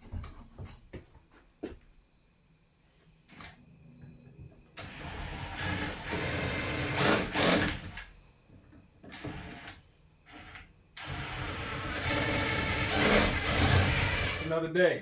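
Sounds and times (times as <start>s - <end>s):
power drill running: 4.8s - 8.1s, 9.1s - 14.5s.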